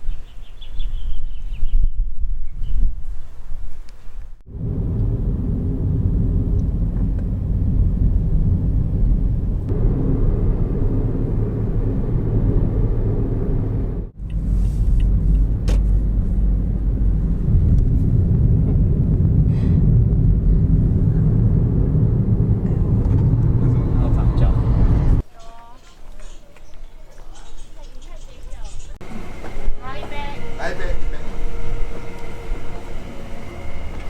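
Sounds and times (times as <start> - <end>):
car engine and road rumble: 4.5 - 25.2.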